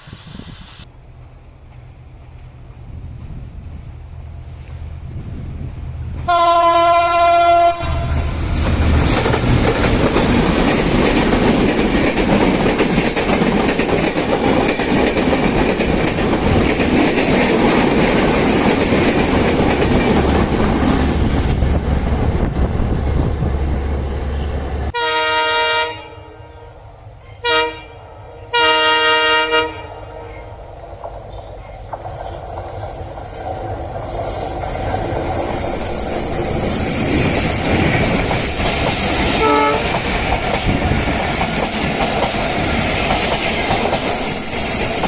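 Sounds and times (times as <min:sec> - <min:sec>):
train wheels rolling past: 0:00.0 - 0:25.0, 0:30.2 - 0:45.0
train horn blowing: 0:06.3 - 0:08.6, 0:24.3 - 0:30.6, 0:39.4 - 0:40.0.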